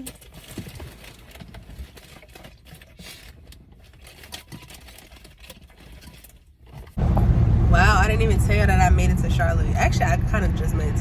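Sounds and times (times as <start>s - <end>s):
objects being handled: 0.0s - 7.0s
faint low rumble: 7.0s - 11.0s.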